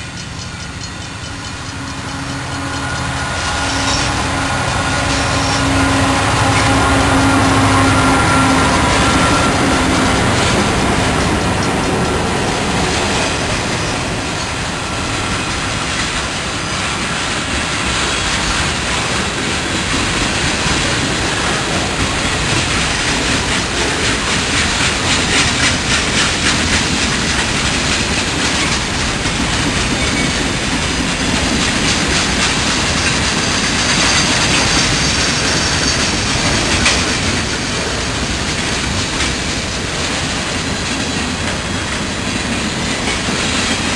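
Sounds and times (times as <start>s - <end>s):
high wheel squeal: 0.0s - 15.6s, 31.8s - 38.2s
wheels clacking over rail joints: 0.0s - 43.9s.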